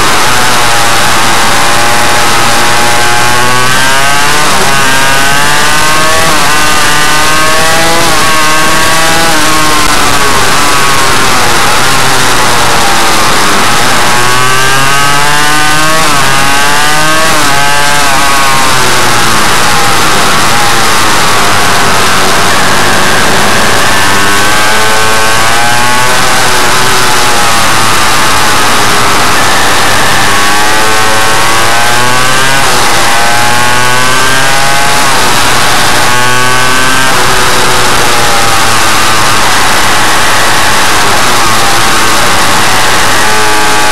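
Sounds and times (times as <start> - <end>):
heavy rushing noise: 0.0 - 43.9
two-stroke engine revving hard: 0.0 - 43.9.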